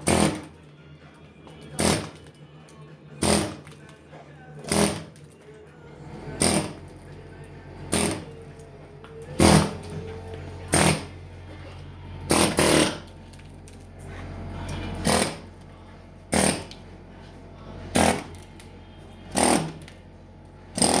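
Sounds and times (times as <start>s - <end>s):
air hammer firing in bursts: 0.0s - 0.5s, 1.8s - 2.2s, 3.2s - 3.6s, 4.7s - 5.1s, 6.4s - 6.8s, 7.9s - 8.3s, 10.7s - 11.1s, 12.3s - 13.0s, 15.0s - 15.5s, 16.3s - 16.7s, 18.0s - 18.4s, 19.3s - 19.8s, 20.8s - 21.0s.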